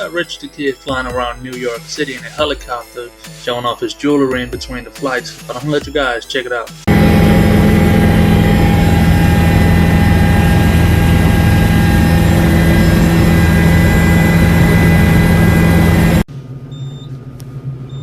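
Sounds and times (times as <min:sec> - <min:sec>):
helicopter engine and rotor drone: 0:06.9 - 0:16.2
low hum: 0:06.9 - 0:16.8.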